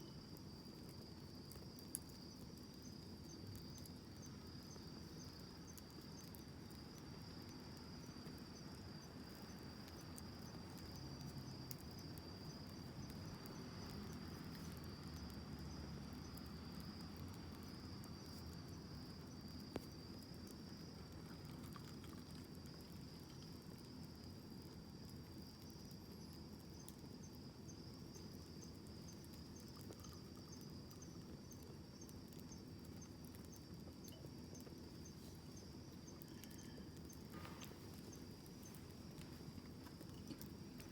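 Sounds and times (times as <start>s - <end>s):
cricket trill: 0.0s - 40.9s
wood fire crackling: 0.0s - 40.9s.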